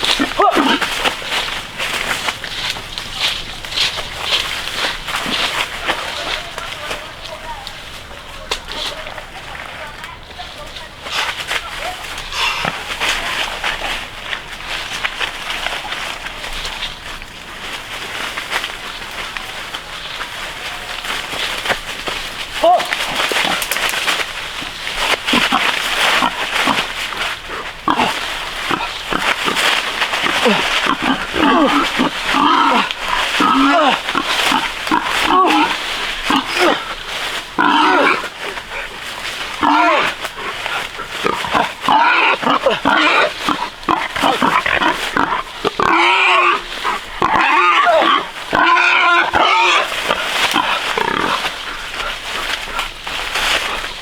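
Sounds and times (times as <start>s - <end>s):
pigs grunting and squealing: 0.0s - 2.3s, 12.1s - 14.0s, 22.6s - 54.0s.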